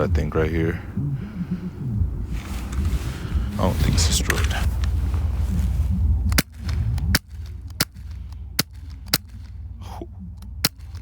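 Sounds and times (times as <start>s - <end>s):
bb gun firing sharp shots: 6.3s - 9.6s, 10.6s - 11.0s.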